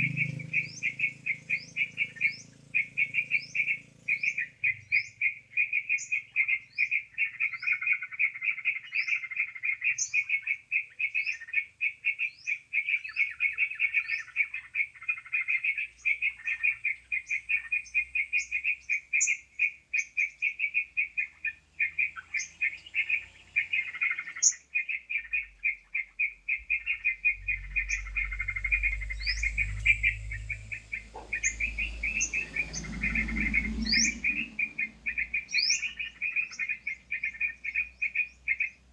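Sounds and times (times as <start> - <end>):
short rising bird chirps: 0.0 - 38.8
bird chattering: 0.0 - 38.9
low rumble: 26.7 - 35.6.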